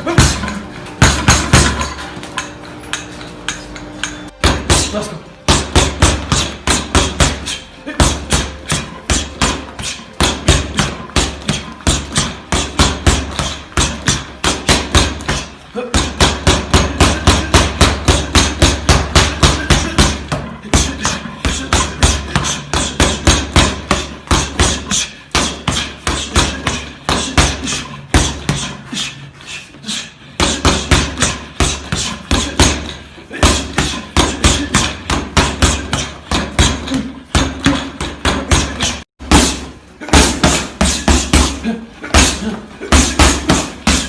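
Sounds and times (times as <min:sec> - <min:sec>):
speed bag being punched: 0:00.0 - 0:02.0, 0:04.3 - 0:29.2, 0:30.1 - 0:44.0.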